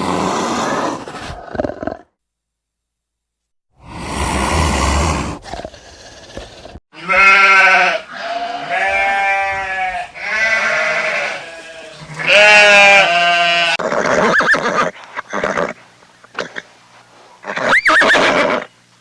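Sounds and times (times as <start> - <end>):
farm animal bleating: 6.9 - 16.6.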